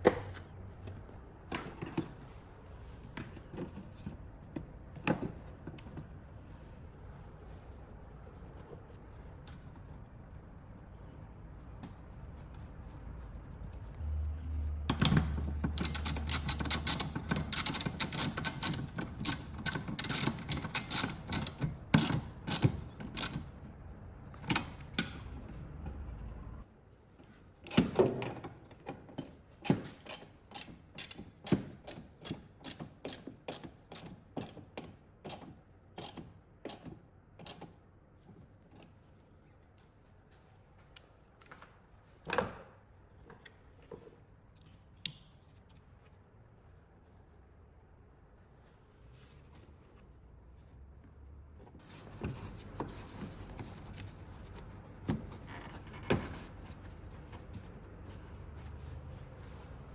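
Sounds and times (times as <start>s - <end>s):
ratchet wrench clicking: 30.0s - 34.6s, 35.3s - 36.8s.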